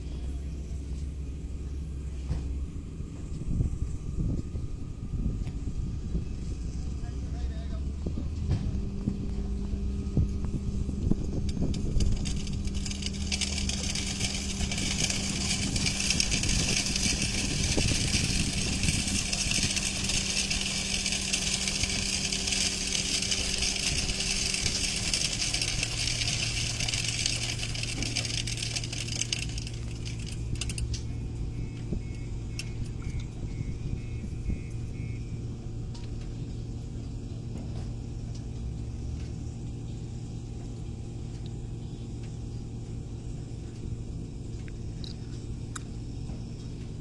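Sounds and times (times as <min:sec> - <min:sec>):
heavy machinery motor hum: 0:00.0 - 0:47.0.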